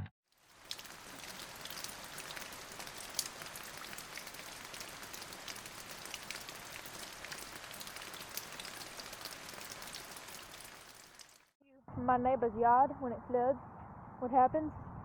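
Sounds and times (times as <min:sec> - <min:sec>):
raindrops ticking: 0:00.3 - 0:11.5
steady rain falling: 0:00.3 - 0:11.5.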